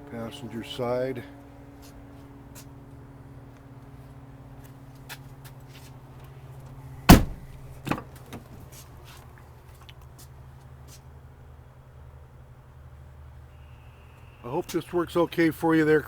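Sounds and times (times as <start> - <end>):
steady low hum: 5.9 - 8.6
truck door shutting: 7.0 - 8.6.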